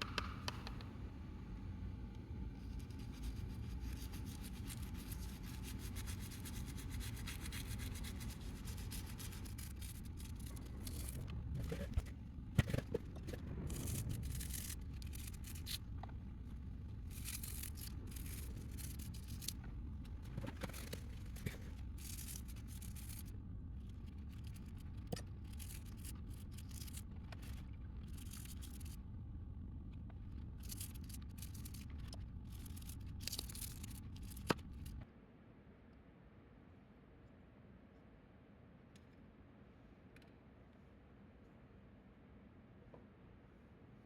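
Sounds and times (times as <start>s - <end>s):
steady low hum: 0.0s - 44.0s
scraping and scrubbing strokes: 2.7s - 16.1s.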